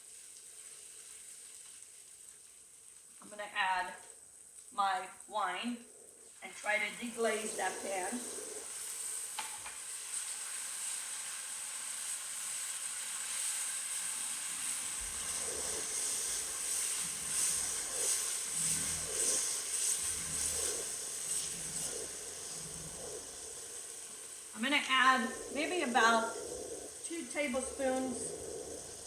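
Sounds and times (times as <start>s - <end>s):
wine sizzling in a hot pot: 0.0s - 29.0s.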